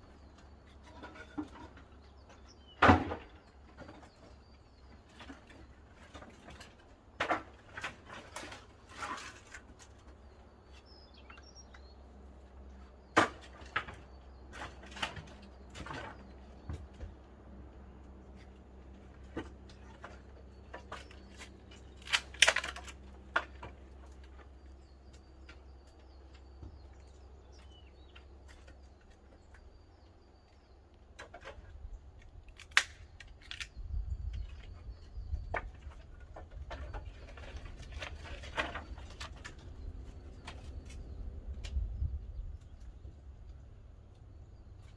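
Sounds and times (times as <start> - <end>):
sharp wood cracks: 13.1 - 16.7, 19.2 - 26.4, 31.0 - 41.8
firewood crackling and popping: 21.9 - 23.6, 32.4 - 33.7.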